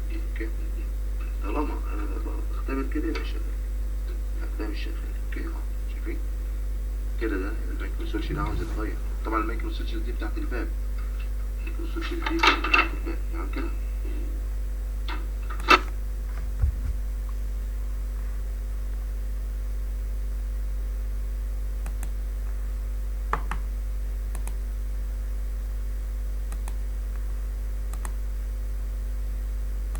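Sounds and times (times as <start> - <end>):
electrical mains hum: 0.0 - 29.9
low knock: 16.5 - 17.2.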